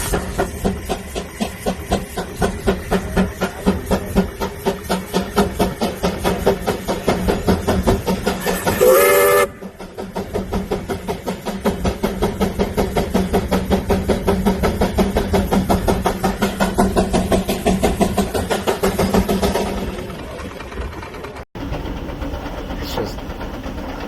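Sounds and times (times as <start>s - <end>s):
steam engine exhaust beating: 0.0s - 24.0s
steam whistle blast: 8.4s - 9.6s.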